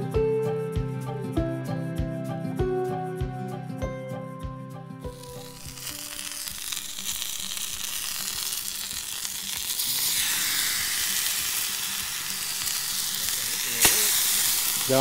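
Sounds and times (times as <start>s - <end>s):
food sizzling in a frying pan: 5.1s - 15.0s.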